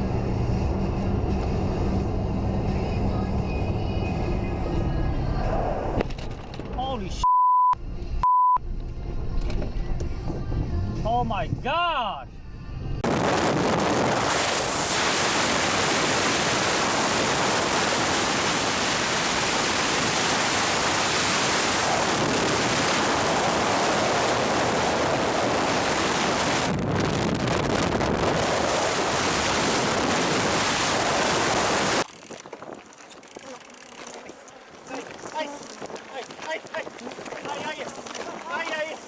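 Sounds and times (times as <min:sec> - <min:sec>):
wind roaring: 0:13.0 - 0:33.5
water rushing: 0:14.2 - 0:26.7, 0:28.3 - 0:32.0.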